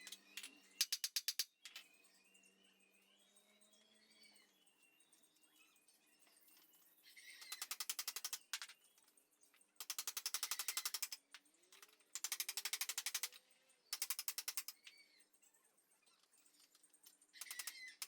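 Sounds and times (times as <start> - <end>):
rapid mechanical clicking: 7.5 - 8.7, 9.8 - 11.2, 12.1 - 14.8, 17.4 - 18.0.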